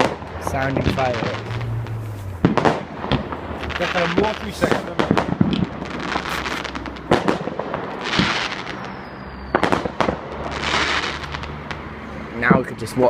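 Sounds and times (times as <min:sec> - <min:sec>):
fireworks hissing bursts: 0:00.0 - 0:11.8
fireworks bangs and crackles: 0:00.0 - 0:13.0
faint fireworks whistle: 0:08.0 - 0:11.5.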